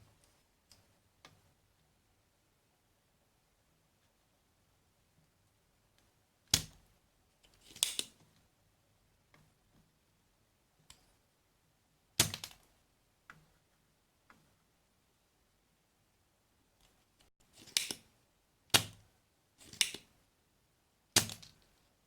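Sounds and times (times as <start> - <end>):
hand tools snapping and clicking: 17.6 - 18.0.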